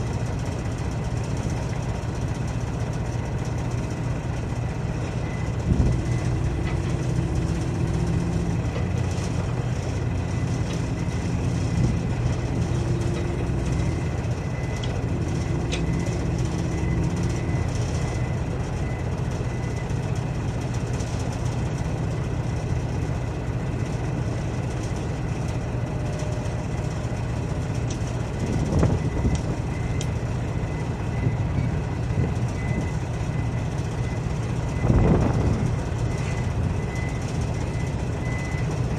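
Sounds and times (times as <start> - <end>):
heavy diesel engine droning: 0.0 - 38.9.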